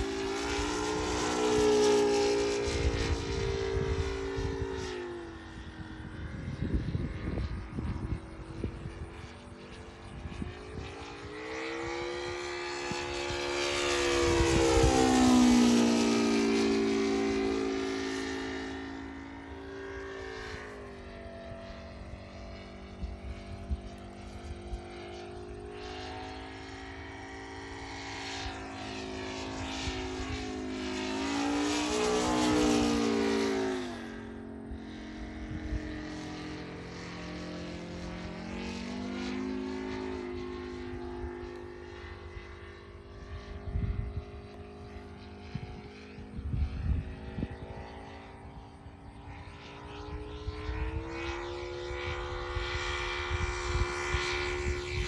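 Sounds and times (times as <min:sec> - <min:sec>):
model plane engine: 0:00.0 - 0:55.0.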